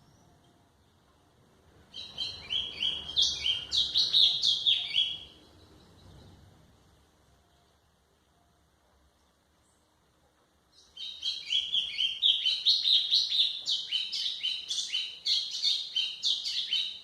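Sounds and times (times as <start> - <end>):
bird singing high clear notes: 1.9 - 6.4, 10.8 - 17.0.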